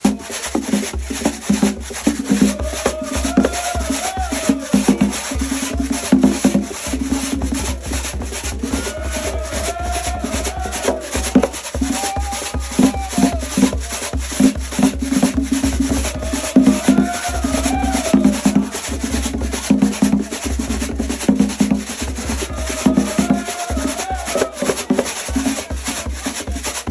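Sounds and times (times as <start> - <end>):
drums in steady rhythm: 0.0 - 26.9
rattling percussion: 0.0 - 26.9
person singing: 22.1 - 25.4.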